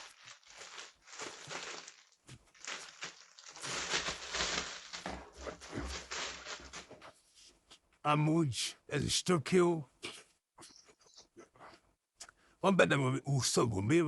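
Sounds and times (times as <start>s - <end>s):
packaging rustling and crinkling: 0.0s - 7.1s.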